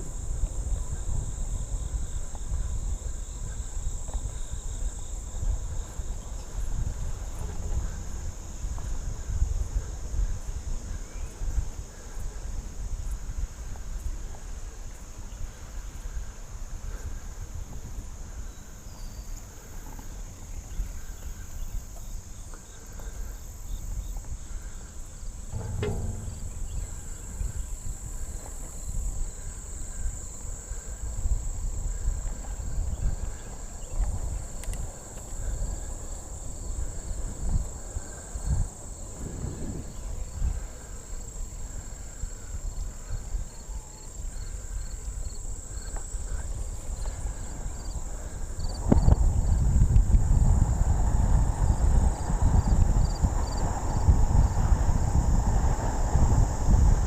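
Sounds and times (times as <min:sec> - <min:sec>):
insects droning: 0:00.0 - 0:57.0
wind rumble on microphone: 0:00.0 - 0:57.0
faint pulsing chirp: 0:20.4 - 0:30.9.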